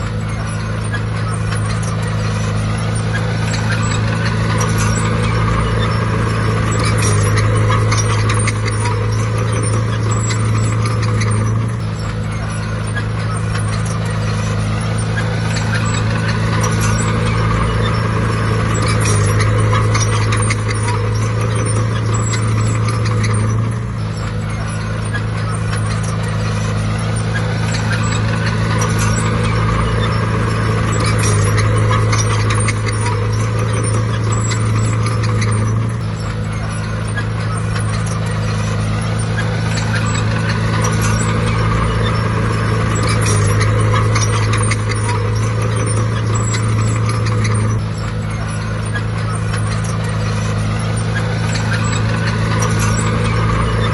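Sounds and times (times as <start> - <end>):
heavy diesel engine under load: 0.0 - 53.9
metallic clatter: 0.0 - 53.9.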